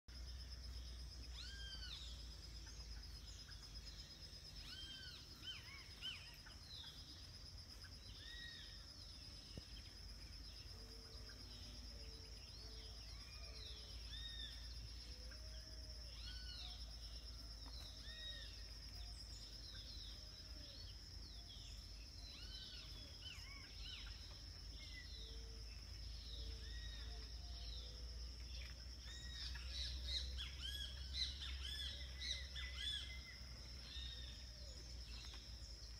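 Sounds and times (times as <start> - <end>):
birds chirping and calling: 1.3 - 8.9.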